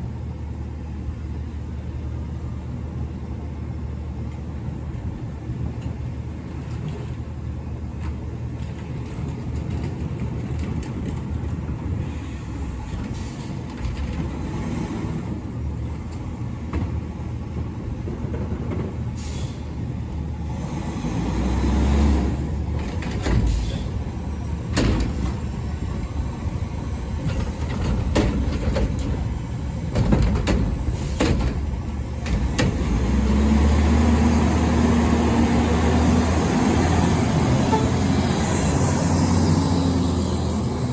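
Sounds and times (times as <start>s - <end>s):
truck diesel engine revving: 20.4s - 22.8s, 31.8s - 40.9s
metallic clanks and knocks: 27.2s - 32.9s.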